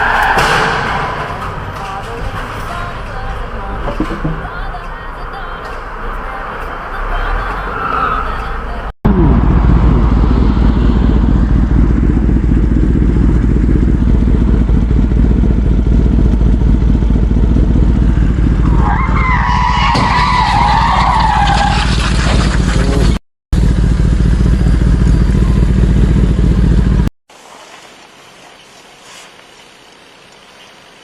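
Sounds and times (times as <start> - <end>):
vehicle rumble: 0.0 - 27.1
tyres squealing: 18.6 - 22.0.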